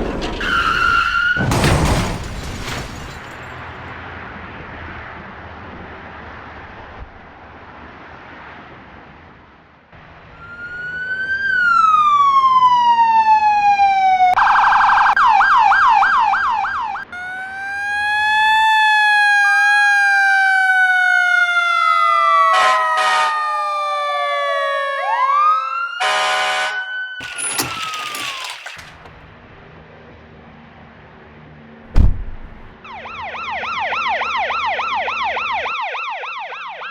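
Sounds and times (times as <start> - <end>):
siren wailing: 10.4 - 28.6, 32.8 - 36.9
siren yelp warbling: 14.4 - 20.2.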